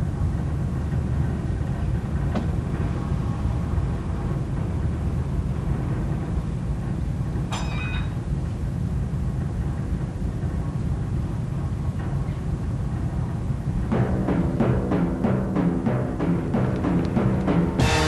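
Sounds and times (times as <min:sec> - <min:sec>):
vehicle engine rumbling: 0:00.0 - 0:07.5.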